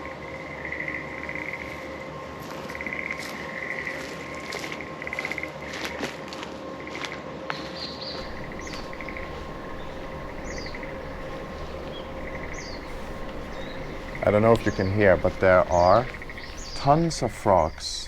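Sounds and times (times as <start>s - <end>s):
bird chirps: 8.2s - 18.0s
frogs croaking: 8.2s - 18.0s.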